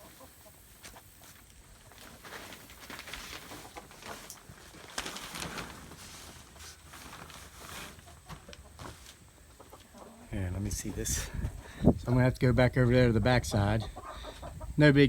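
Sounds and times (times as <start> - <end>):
chickens clucking: 0.0 - 2.1, 7.9 - 14.9
plastic sheeting rustling: 1.3 - 9.2.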